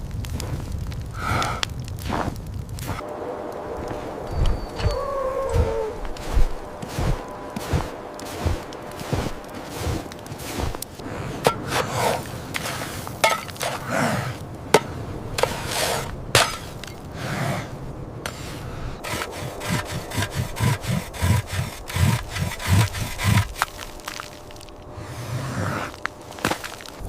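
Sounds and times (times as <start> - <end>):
low thuds: 2.2 - 13.8
rubbing: 18.3 - 24.5.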